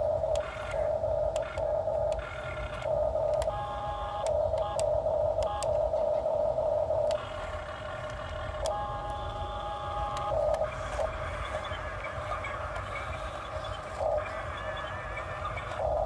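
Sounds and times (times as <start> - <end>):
scattered clicks: 0.2 - 5.9, 7.0 - 11.9.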